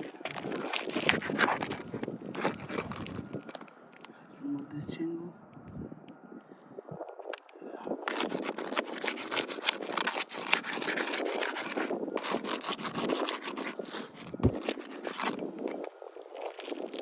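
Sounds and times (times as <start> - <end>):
roof shingle scraping: 0.0 - 4.2, 8.0 - 17.0.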